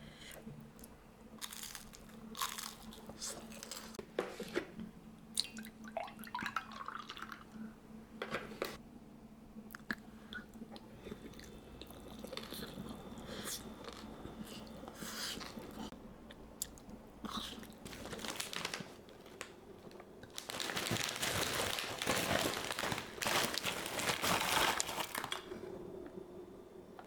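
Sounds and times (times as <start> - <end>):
person chewing crunchy snack: 1.4 - 4.0
dense crinkling: 17.8 - 25.6.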